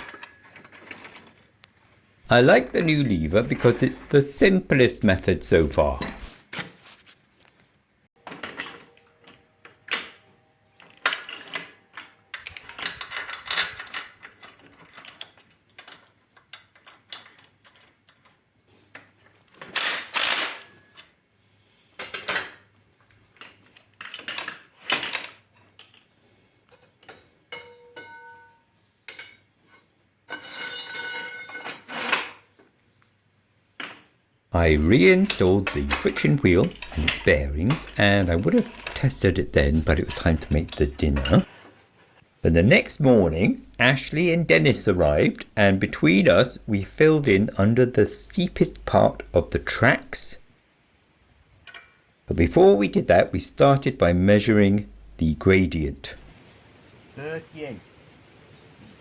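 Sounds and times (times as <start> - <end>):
steel parts and tools clinking: 0.0 - 1.7, 2.3 - 6.4, 8.2 - 18.5, 19.6 - 21.2, 22.0 - 29.5, 30.3 - 32.4, 34.6 - 41.6, 42.6 - 50.5.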